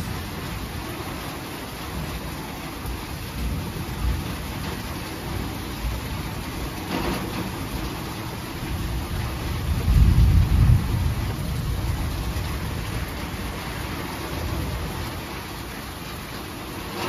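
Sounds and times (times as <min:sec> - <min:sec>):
low rumble of thunder: 0:00.0 - 0:17.0
steady rain: 0:00.0 - 0:17.0.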